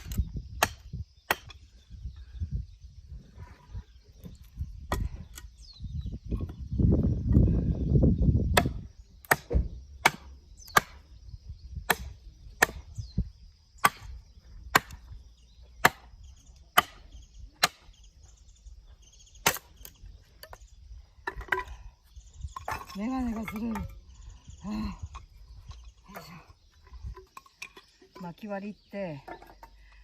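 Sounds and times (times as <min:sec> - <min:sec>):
blade chopping into wood: 0:00.0 - 0:01.6, 0:08.5 - 0:11.0, 0:11.8 - 0:12.9, 0:13.8 - 0:15.1, 0:15.8 - 0:16.1, 0:16.7 - 0:17.9, 0:19.4 - 0:19.9.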